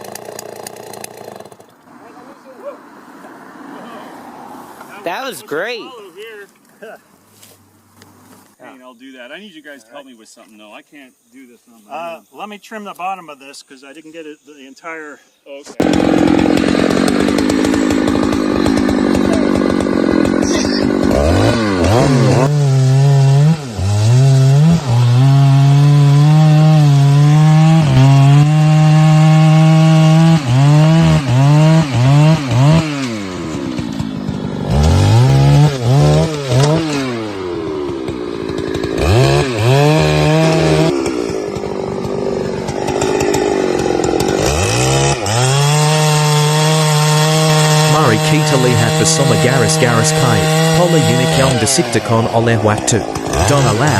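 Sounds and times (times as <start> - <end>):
chainsaw cutting wood: 0.0 - 2.0, 15.8 - 53.9.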